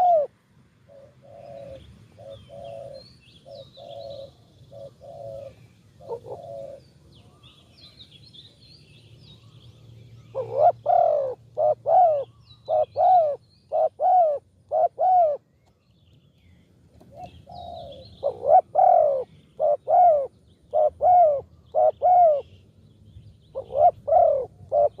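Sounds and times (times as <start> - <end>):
dove cooing: 0.0 - 7.5, 10.3 - 15.5, 17.0 - 22.6, 23.5 - 25.0
small birds chirping: 0.8 - 25.0.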